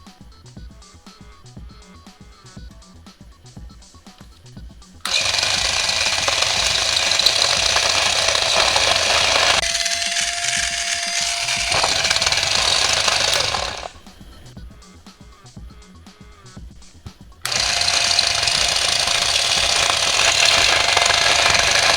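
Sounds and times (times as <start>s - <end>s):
steady electrical whine: 2.3s - 14.6s, 16.4s - 21.9s
harsh electrical buzzing crackle: 5.1s - 14.6s, 17.1s - 21.9s.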